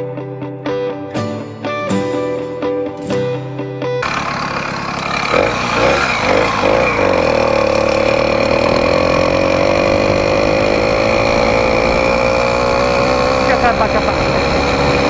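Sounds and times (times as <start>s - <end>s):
guitar music: 0.0s - 15.0s
small engine revving: 4.0s - 15.0s.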